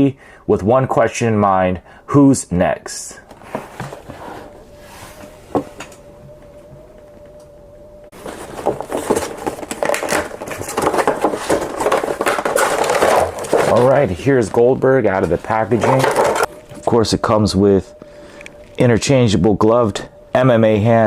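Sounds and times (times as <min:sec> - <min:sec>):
plastic packaging crinkling: 0:08.2 - 0:16.9.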